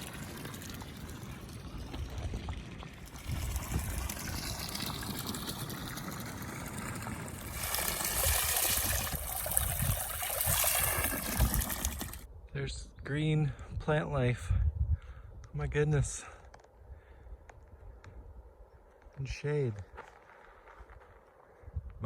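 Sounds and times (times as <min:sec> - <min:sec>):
spring water trickling: 0:00.0 - 0:12.3.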